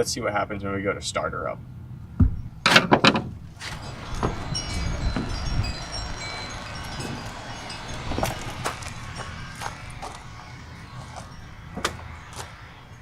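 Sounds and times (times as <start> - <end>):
warning chime dinging: 3.6 - 13.0.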